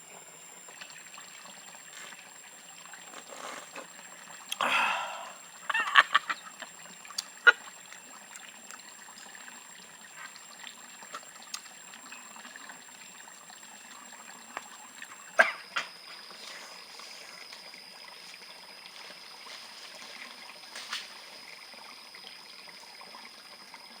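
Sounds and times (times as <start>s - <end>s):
water trickling: 0.0s - 24.0s.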